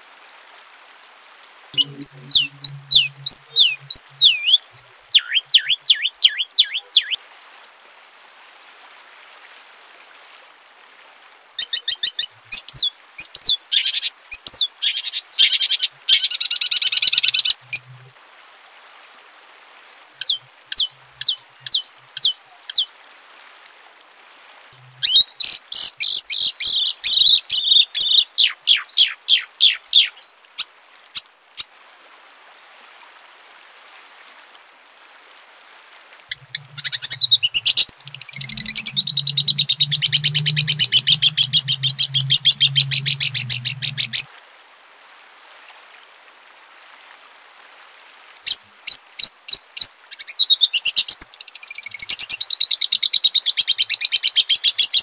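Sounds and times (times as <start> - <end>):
low steady hum: 1.8 - 5.6, 36.3 - 44.3
songbird singing: 1.8 - 7.2, 11.6 - 18.0, 20.2 - 22.9, 24.8 - 31.3, 36.3 - 44.3.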